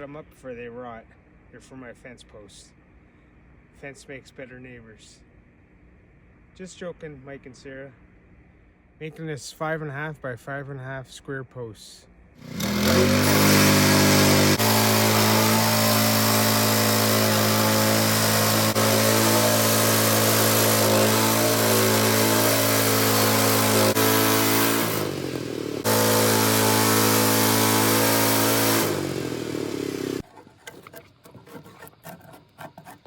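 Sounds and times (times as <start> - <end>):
sawmill engine running: 12.4 - 32.2
band saw cutting log: 12.4 - 33.0.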